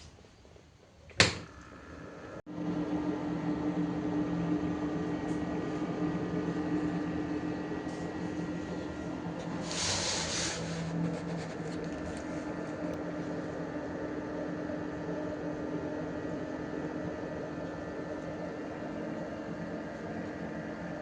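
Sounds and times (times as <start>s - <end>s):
fan humming: 0.0s - 21.0s
brief hiss: 9.5s - 10.9s.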